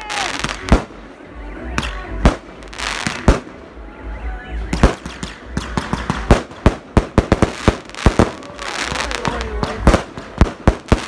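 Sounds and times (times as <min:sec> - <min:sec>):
fireworks bangs: 0:00.0 - 0:01.1, 0:01.8 - 0:03.7, 0:04.7 - 0:11.0
fireworks hiss and crackle: 0:04.8 - 0:11.0.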